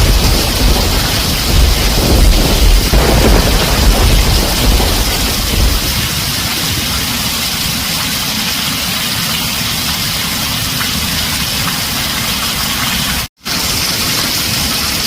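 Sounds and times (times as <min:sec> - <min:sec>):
low rumble: 0:00.0 - 0:07.3
heavy rain on a tin roof: 0:00.0 - 0:15.0.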